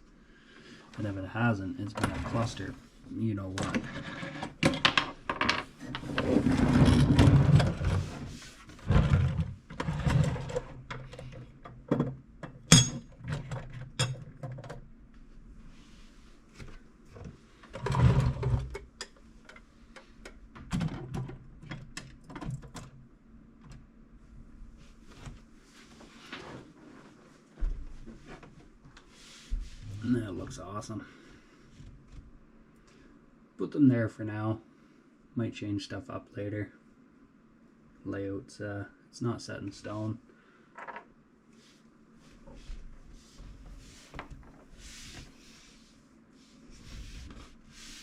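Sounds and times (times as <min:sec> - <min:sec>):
tool boxes rumbling across floor: 0:05.5 - 0:10.8.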